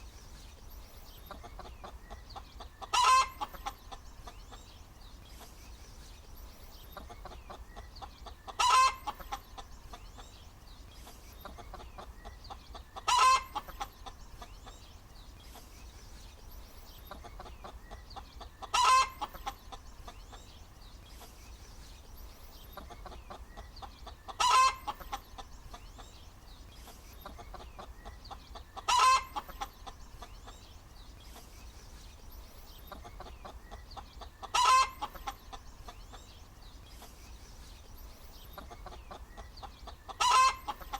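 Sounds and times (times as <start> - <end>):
hen clucking softly: 1.1 - 4.8, 6.8 - 10.4, 11.0 - 14.8, 16.9 - 20.6, 22.6 - 26.2, 26.8 - 30.7, 32.8 - 36.4, 38.4 - 40.9
hen cackling: 1.5 - 4.0, 8.2 - 9.4, 12.8 - 13.9, 17.3 - 19.8, 24.1 - 25.2, 28.6 - 30.0, 33.0 - 35.6, 39.9 - 40.9.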